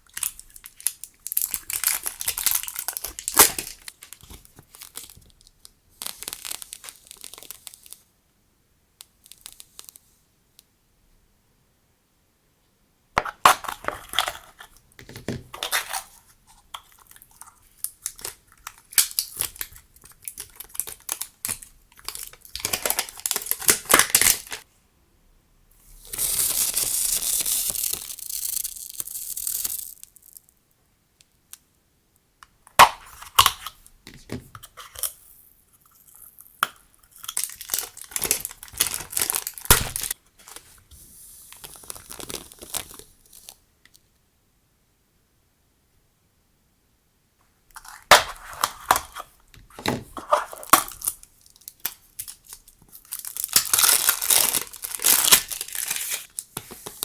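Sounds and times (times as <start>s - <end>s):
plastic packaging crinkling: 0.0s - 8.0s, 13.3s - 24.6s, 26.0s - 30.4s, 36.1s - 40.8s, 41.5s - 43.6s, 47.8s - 57.0s
continuous tearing hiss: 0.0s - 8.1s, 9.0s - 10.2s, 25.8s - 30.7s, 34.8s - 43.7s, 50.4s - 57.0s.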